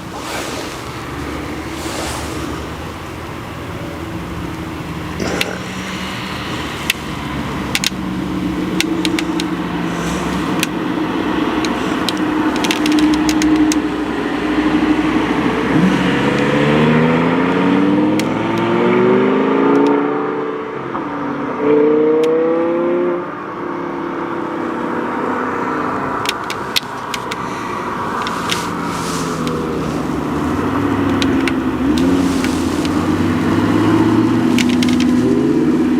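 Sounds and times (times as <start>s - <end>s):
car engine accelerating: 0.0s - 35.9s
sharp ticks and clicks: 6.5s - 9.6s, 11.5s - 13.9s.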